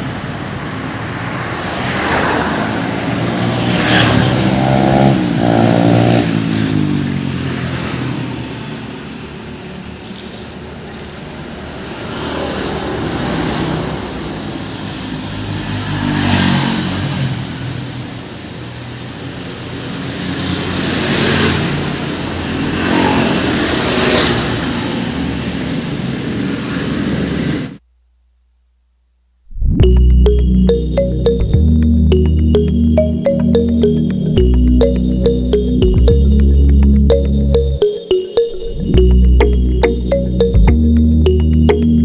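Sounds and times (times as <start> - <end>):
vehicles passing on road: 0.0 - 27.8.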